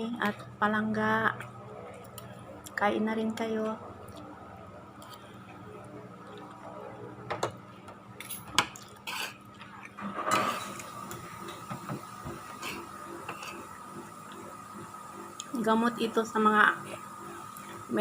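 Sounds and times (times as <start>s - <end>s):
cutlery scraping a plate: 8.2s - 9.4s, 10.0s - 10.8s.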